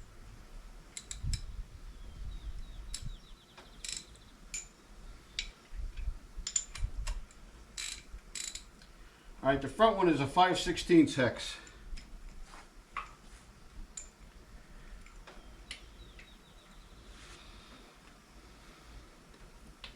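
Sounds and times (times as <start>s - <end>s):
faint ticks: 0.9s - 1.5s, 2.8s - 9.0s, 13.0s - 16.8s.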